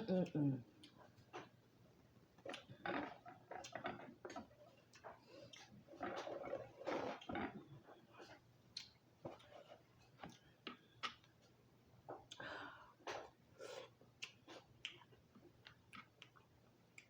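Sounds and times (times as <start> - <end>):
chewing food: 0.1 - 1.6, 2.4 - 11.5, 13.1 - 17.0.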